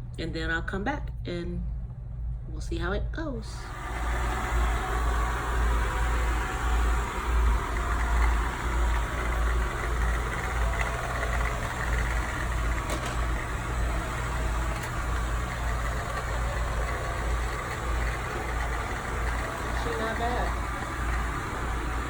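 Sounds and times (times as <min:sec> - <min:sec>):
robot vacuum motor hum: 0:03.6 - 0:22.0.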